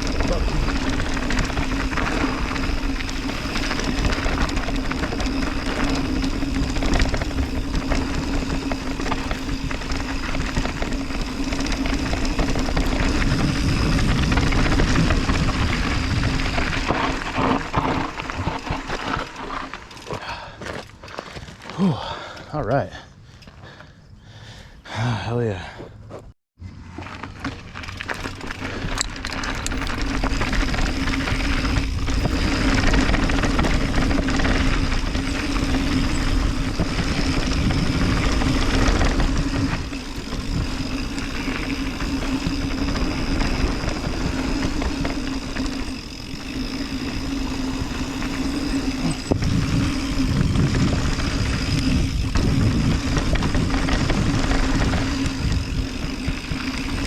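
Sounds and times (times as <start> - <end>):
tyres rolling over dirt: 0.0 - 22.3, 26.6 - 57.0
wind rushing over microphone: 29.6 - 57.0.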